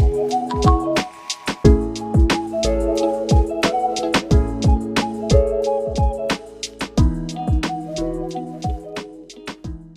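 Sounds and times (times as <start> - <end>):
hi-hat strokes: 0.0 - 9.7.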